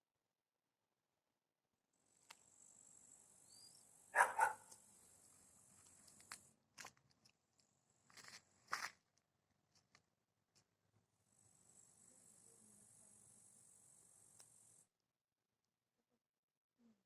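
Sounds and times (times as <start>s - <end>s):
dog barking: 4.1s - 4.8s.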